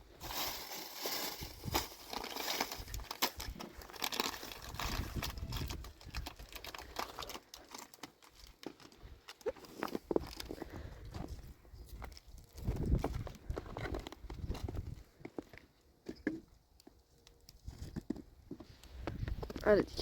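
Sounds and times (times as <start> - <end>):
rock salt crunching on icy steps: 0.0 - 15.7.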